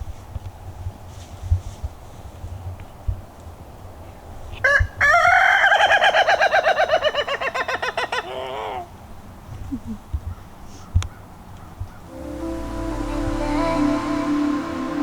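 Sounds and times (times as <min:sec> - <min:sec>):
rooster crowing: 0:04.6 - 0:08.2.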